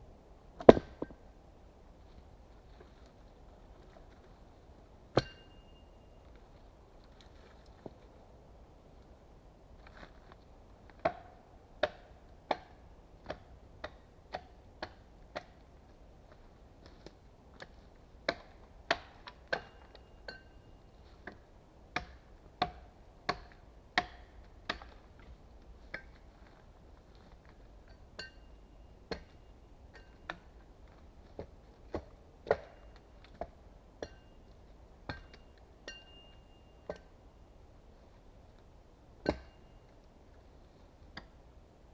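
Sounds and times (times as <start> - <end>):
axe chopping wood: 0.6 - 1.2, 18.3 - 20.0, 22.0 - 25.0, 32.0 - 34.2, 39.2 - 39.6.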